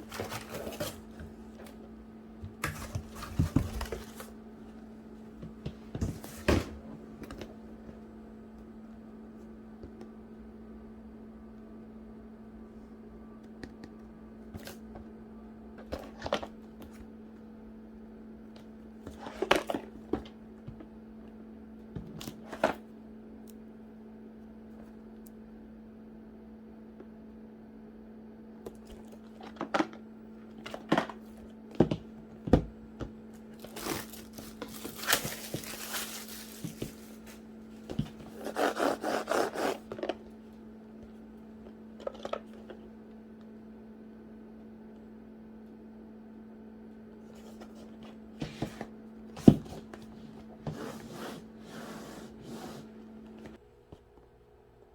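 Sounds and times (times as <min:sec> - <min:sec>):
steady low hum: 0:00.0 - 0:54.9
wrapping crinkling and tearing: 0:33.5 - 0:37.4.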